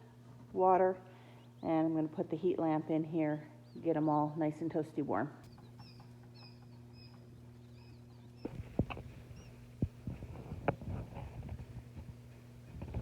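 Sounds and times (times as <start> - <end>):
low steady hum: 0.0 - 13.0
chicks peeping: 5.4 - 9.6.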